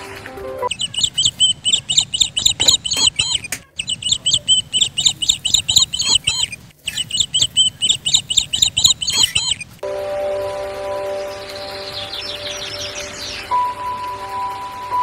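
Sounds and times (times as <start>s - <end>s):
bird chirping: 0.6s - 9.8s, 10.4s - 15.0s.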